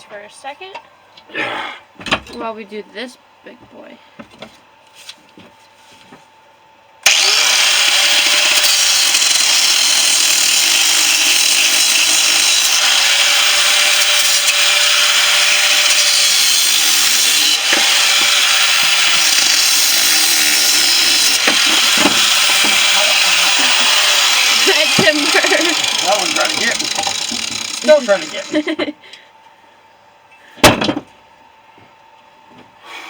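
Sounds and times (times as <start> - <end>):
angle grinder cutting steel: 7.0 - 28.7.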